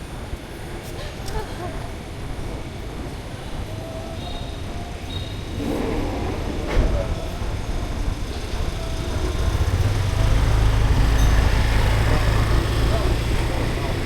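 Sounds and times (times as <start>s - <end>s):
vehicle engine rumble: 5.5s - 14.0s.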